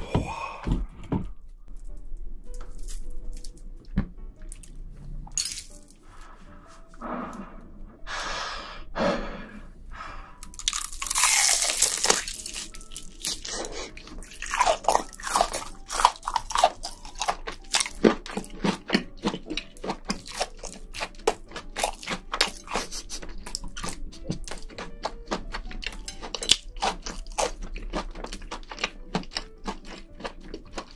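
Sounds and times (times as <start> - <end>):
chewing crunchy shrimp: 10.4 - 30.9.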